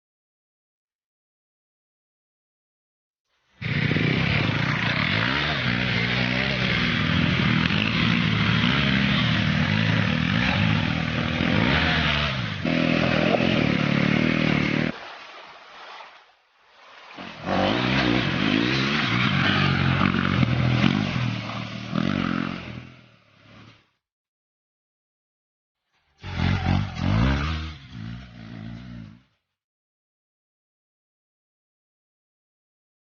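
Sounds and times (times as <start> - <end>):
motorcycle engine revving: 3.6 - 15.0, 17.2 - 23.9, 26.1 - 29.4.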